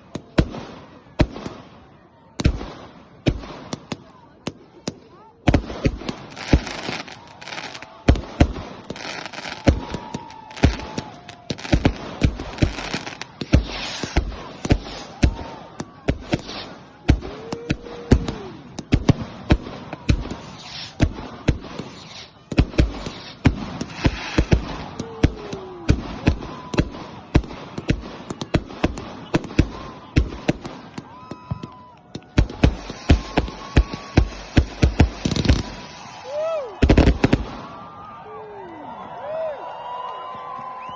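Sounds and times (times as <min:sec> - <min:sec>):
fireworks bangs and cracks: 0:00.0 - 0:38.2
whistling tones: 0:40.0 - 0:40.9.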